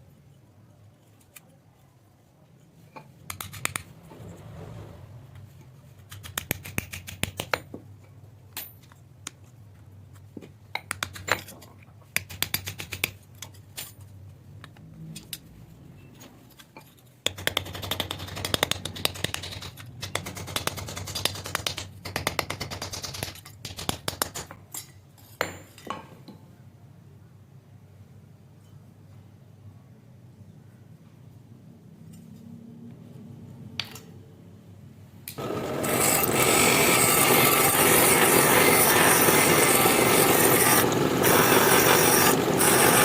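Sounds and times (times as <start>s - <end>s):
scraping on knife: 35.4s - 43.0s.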